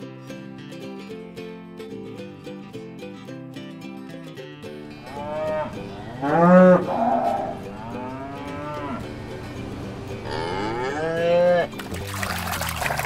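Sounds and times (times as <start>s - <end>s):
cows mooing: 5.0s - 9.3s, 10.2s - 11.8s.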